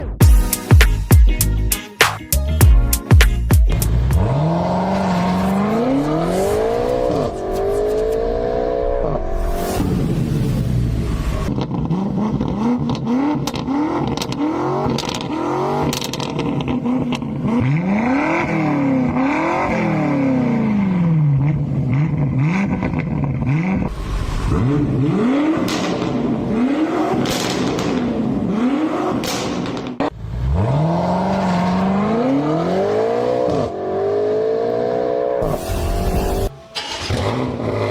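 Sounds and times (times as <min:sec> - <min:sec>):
exhaust cracks: 0:03.7 - 0:19.2, 0:21.4 - 0:30.6, 0:35.4 - 0:37.9
car engine revving: 0:03.7 - 0:37.9.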